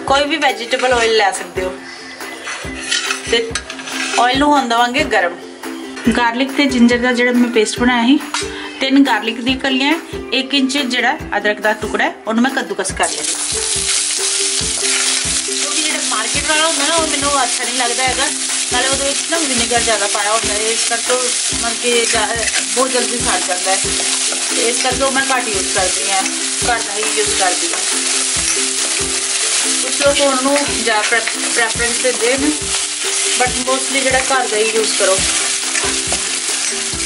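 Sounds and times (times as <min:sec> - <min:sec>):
steel spoon scraping wok: 0:02.0 - 0:04.4, 0:13.3 - 0:37.0
paste sizzling in hot oil: 0:13.0 - 0:37.0.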